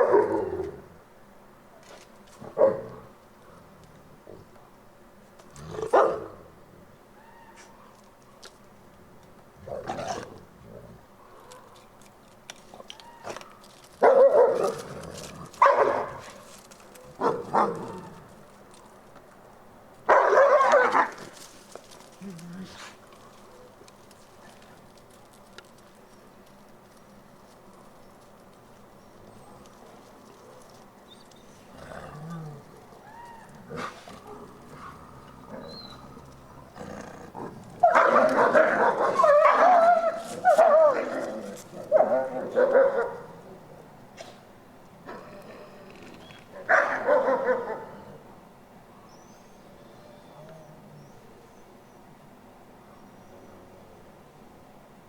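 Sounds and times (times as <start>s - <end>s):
wolves whining cries: 31.1s - 36.6s
wolves harsh outbursts: 31.7s - 43.4s
faint wolf whines: 35.4s - 36.5s, 49.2s - 51.2s.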